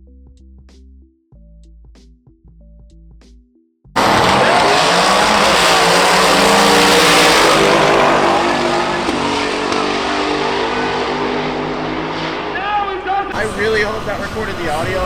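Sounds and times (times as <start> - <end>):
loud car engine: 4.0 - 15.0.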